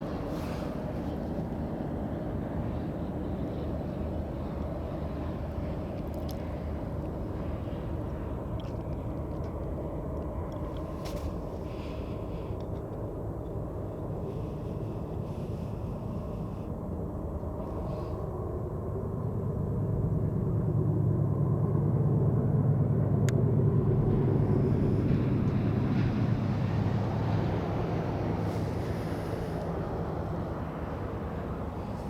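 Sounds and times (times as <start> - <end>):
diesel locomotive rumble: 22.8 - 32.0.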